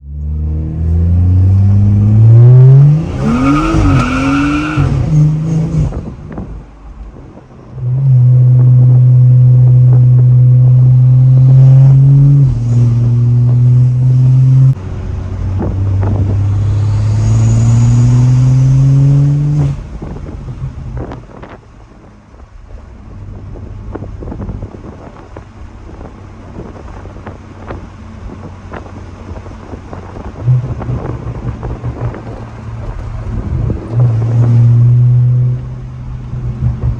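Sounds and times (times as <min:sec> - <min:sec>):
car engine revving under load: 0:00.0 - 0:36.9
exhaust pops: 0:15.5 - 0:21.8, 0:22.5 - 0:36.9.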